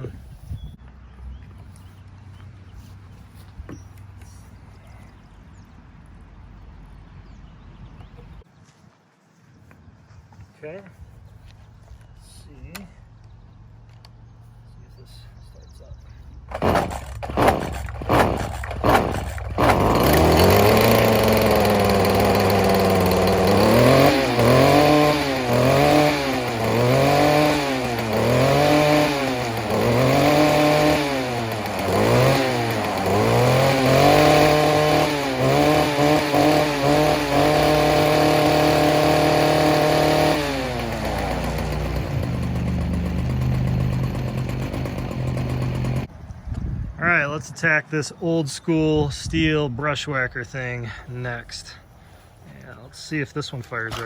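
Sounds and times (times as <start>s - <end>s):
string trimmer engine revving: 16.4s - 46.1s, 53.6s - 54.0s
string trimmer pull-starting: 16.5s - 46.1s.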